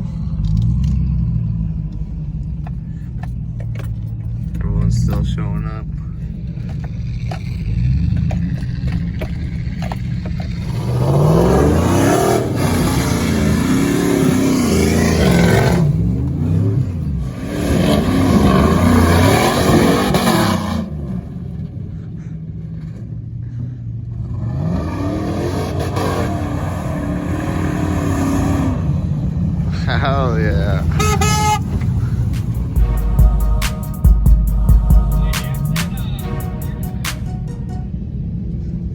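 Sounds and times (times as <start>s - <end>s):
pickup truck engine revving: 5.9s - 22.1s, 24.2s - 36.9s.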